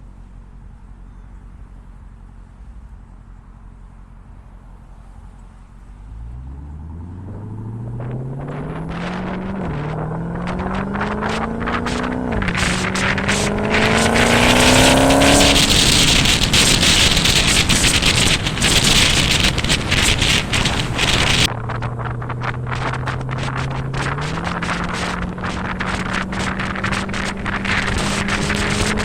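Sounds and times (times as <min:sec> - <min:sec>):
car engine revving hard: 0:06.0 - 0:21.5, 0:22.7 - 0:29.0
wind noise rushing: 0:06.8 - 0:29.0.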